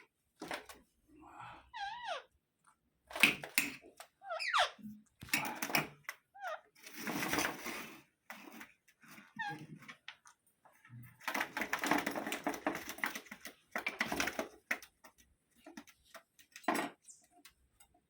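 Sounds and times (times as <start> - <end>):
parakeet squawking: 1.7 - 2.3, 4.2 - 4.9
parakeet chirps: 4.2 - 4.9.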